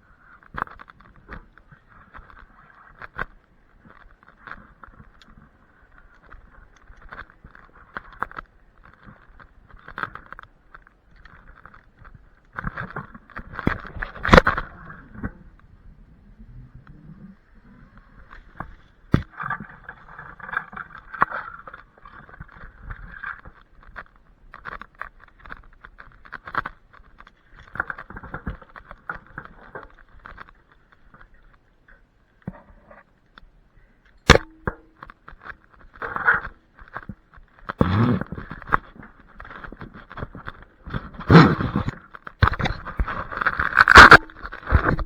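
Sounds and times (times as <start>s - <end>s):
sharp crack: 34.2s - 37.1s, 40.9s - 45.0s
scraping and rustling: 34.2s - 45.0s.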